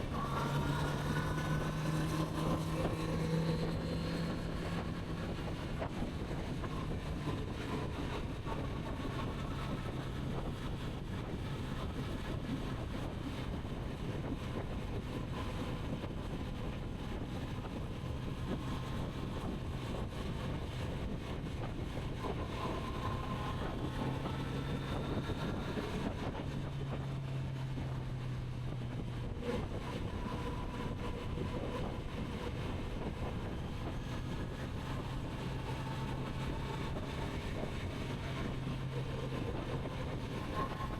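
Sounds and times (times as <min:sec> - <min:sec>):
motorcycle engine cruising: 0:00.0 - 0:09.6
wind over microphone: 0:00.0 - 0:40.9.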